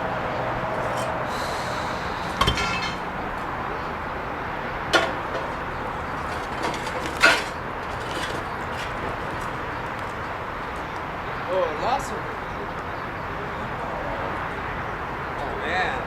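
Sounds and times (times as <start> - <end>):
steady background noise: 0.0 - 16.0
hard objects knocking together: 0.7 - 3.5, 4.9 - 10.4.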